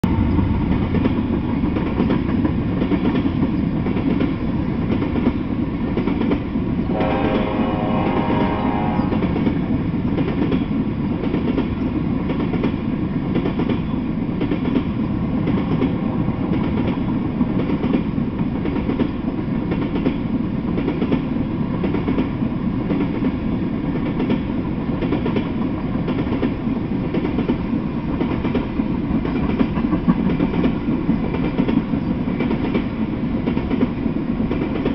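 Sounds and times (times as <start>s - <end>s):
freight train rumbling past: 0.0s - 34.9s
pitched tone: 8.0s - 9.5s.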